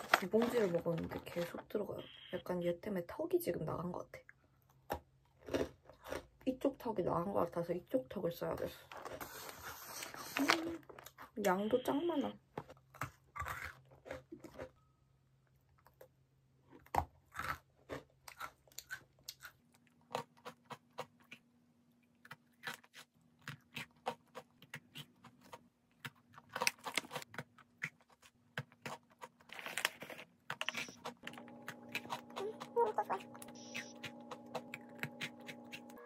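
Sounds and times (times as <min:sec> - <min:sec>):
chewing crunchy cookies: 0:04.3 - 0:06.7, 0:12.6 - 0:14.8, 0:15.7 - 0:36.0.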